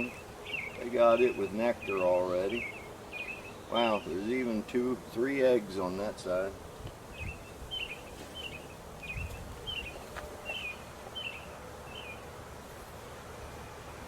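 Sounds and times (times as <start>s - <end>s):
songbird chirping: 0.0s - 4.6s, 7.1s - 12.4s.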